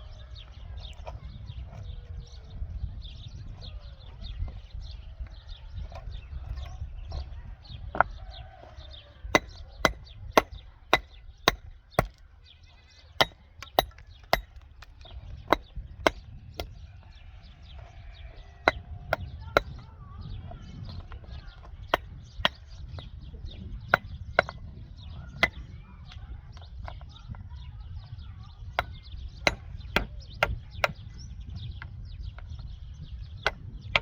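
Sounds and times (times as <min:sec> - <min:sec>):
hand tool striking wood: 0:09.3 - 0:12.2, 0:13.2 - 0:16.7, 0:18.6 - 0:19.8, 0:23.9 - 0:24.7, 0:25.4 - 0:25.6, 0:28.8 - 0:31.0, 0:33.4 - 0:34.0.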